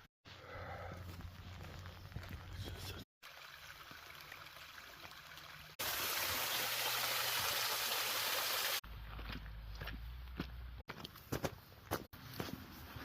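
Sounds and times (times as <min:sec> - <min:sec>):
stream running water: 0:03.2 - 0:08.8.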